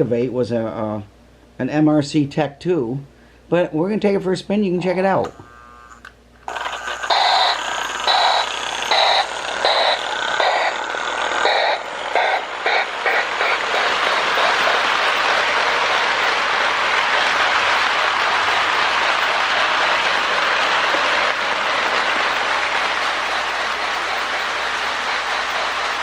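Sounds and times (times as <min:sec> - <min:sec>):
model train motor and wheels: 0:05.2 - 0:26.0
electronic steam chuff hiss: 0:06.5 - 0:26.0.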